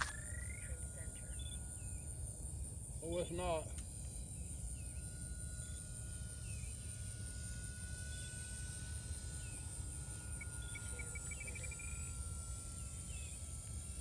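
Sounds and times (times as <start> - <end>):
bird chirps: 0.0 - 2.2, 10.3 - 12.1
insect hiss: 0.0 - 14.0
model plane motor whine: 0.0 - 14.0.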